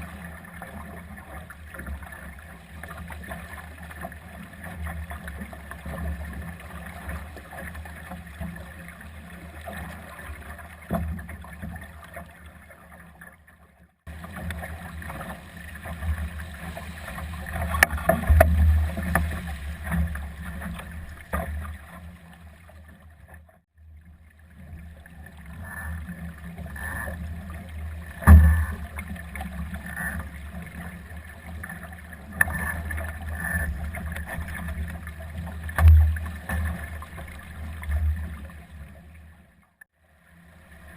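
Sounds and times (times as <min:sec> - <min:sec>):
water rushing past hull: 0:14.1 - 0:40.9
sharp knocks from boat: 0:17.5 - 0:21.8, 0:28.2 - 0:29.0, 0:35.7 - 0:36.7.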